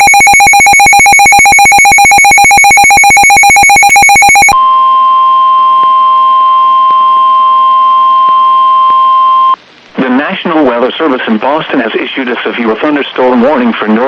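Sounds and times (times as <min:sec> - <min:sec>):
steady alarm tone: 0:00.0 - 0:09.6.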